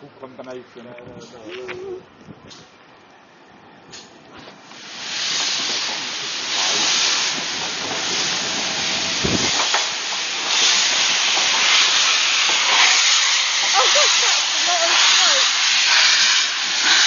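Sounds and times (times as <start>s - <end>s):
locomotive steam hissing: 3.9s - 17.0s.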